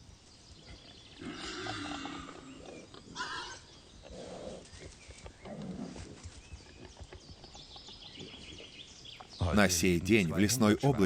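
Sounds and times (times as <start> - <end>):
wild boars grunting: 0.6 - 7.2.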